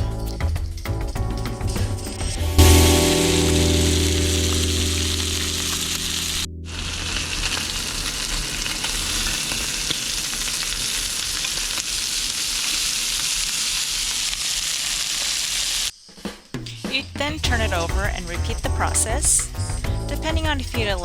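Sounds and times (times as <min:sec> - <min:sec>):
background music: 0:00.0 - 0:07.4, 0:16.6 - 0:21.0
meat sizzling in a pan: 0:01.8 - 0:15.9.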